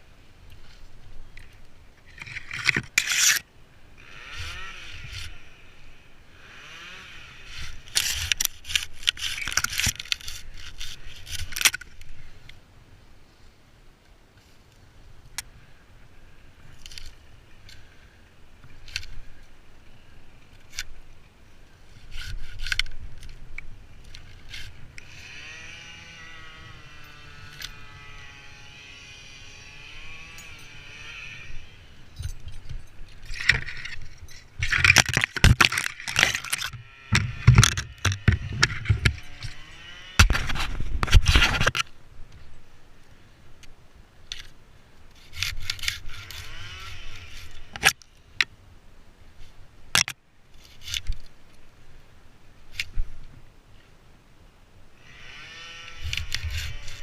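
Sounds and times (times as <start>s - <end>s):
wood and brush scraping: 0.4s - 12.6s, 21.8s - 42.0s, 44.3s - 48.0s, 49.4s - 51.6s, 55.0s - 57.0s
branches cracking and snapping: 7.6s - 12.1s, 33.2s - 41.9s.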